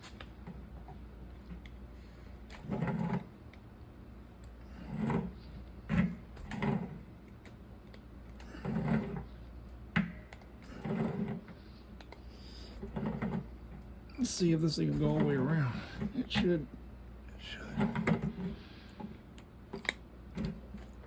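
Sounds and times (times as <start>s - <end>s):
low steady hum: 0.0s - 21.0s
tools scraping and clunking: 2.4s - 3.4s, 4.7s - 7.0s, 8.4s - 9.4s, 10.1s - 16.6s, 17.6s - 21.0s.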